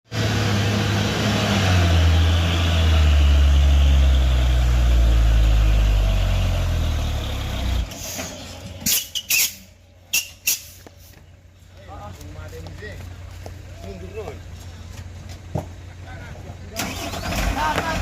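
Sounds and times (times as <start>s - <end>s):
diesel truck engine running: 0.1s - 18.0s
short sharp high squeaks: 7.9s - 10.8s.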